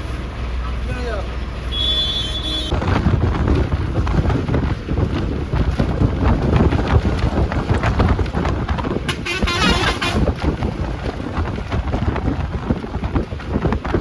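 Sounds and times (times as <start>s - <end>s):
bus engine and road rumble: 0.0s - 14.0s
wind buffeting microphone: 2.6s - 14.0s
rattles and knocks: 2.7s - 9.3s.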